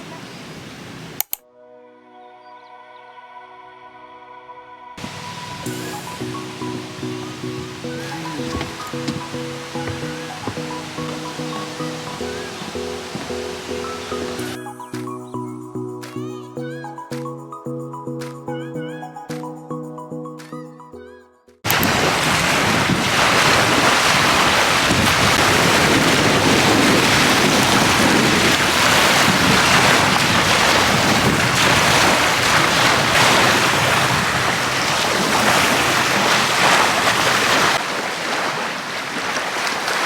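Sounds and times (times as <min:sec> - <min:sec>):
wind and waves rushing: 0:00.0 - 0:01.2, 0:05.0 - 0:14.6, 0:21.7 - 0:40.0
wind buffeting microphone: 0:05.0 - 0:14.6, 0:21.7 - 0:40.0.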